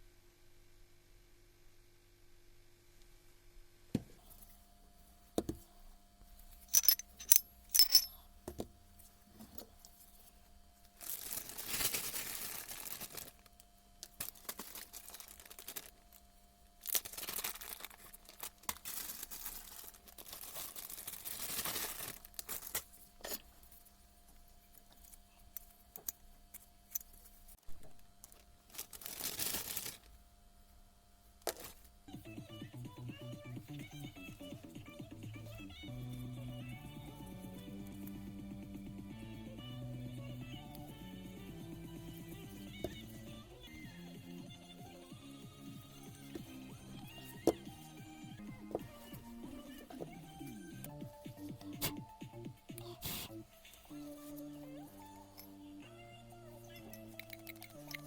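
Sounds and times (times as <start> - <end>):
faint steady hum: 0.0 - 58.0
small metal parts clinking: 6.7 - 8.2, 56.7 - 58.0.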